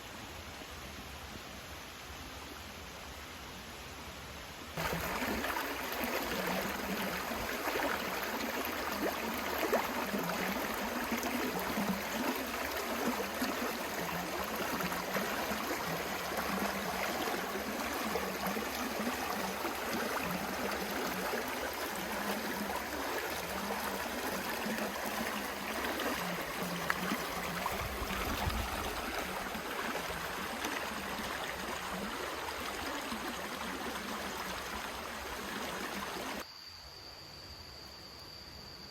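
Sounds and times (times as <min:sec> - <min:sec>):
river water rushing: 0:04.8 - 0:33.2.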